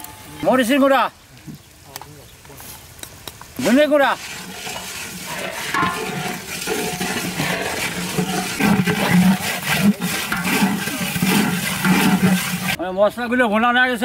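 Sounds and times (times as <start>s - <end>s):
food sizzling in oil: 3.6s - 12.8s
ladle stirring in pot: 3.6s - 12.8s.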